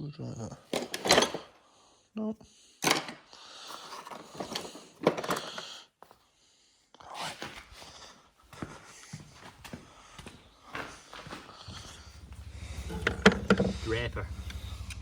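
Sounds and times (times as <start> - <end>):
metal tools clinking in toolbox: 0.7 - 1.5, 3.9 - 5.7.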